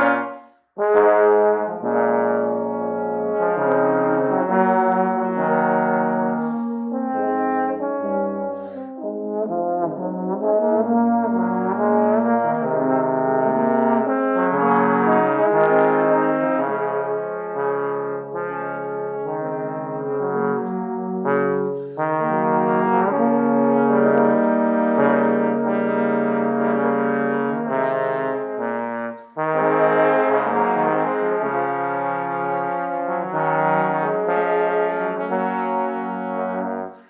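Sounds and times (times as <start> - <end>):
trombones playing harmony: 0.0 - 37.0.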